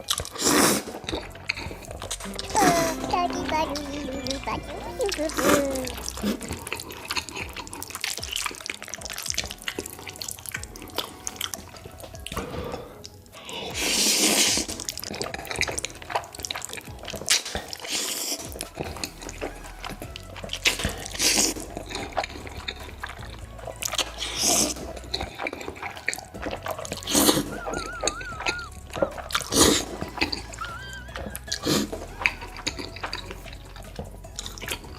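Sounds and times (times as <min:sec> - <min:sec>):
chewing: 0:00.0 - 0:03.0, 0:04.2 - 0:34.9
slurping noodles: 0:00.0 - 0:03.4, 0:04.4 - 0:34.9
small wet clicks: 0:05.1 - 0:12.4, 0:14.5 - 0:34.9.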